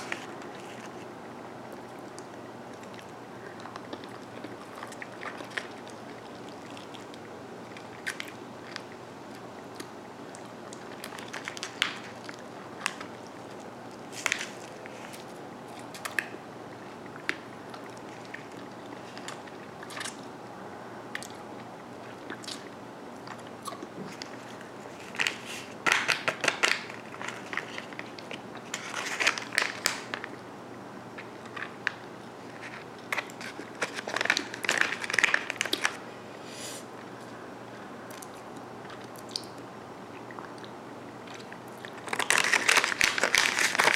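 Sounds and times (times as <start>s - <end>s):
plastic candy wrapper rustling: 10.8s - 13.3s, 14.1s - 16.4s, 24.2s - 30.3s, 31.2s - 36.0s, 41.9s - 43.9s.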